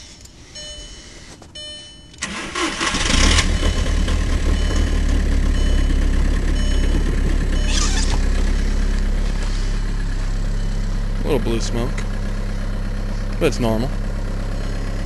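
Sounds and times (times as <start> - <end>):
starter motor cranking: 2.2 - 8.6
diesel engine idling: 2.2 - 15.0.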